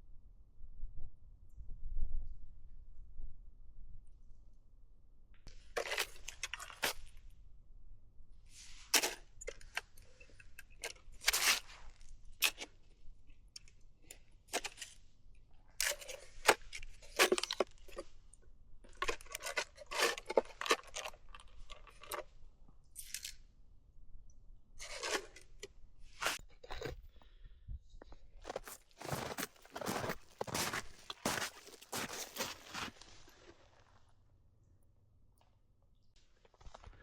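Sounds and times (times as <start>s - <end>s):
things being handled: 28.5s - 33.3s.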